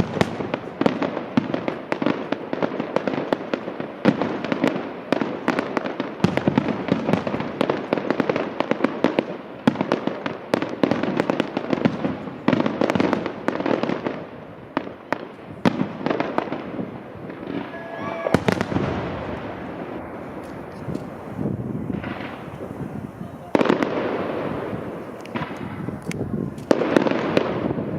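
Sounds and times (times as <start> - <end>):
fireworks bangs and crackling: 0.0 - 27.9
loud firework bang: 17.3 - 20.1.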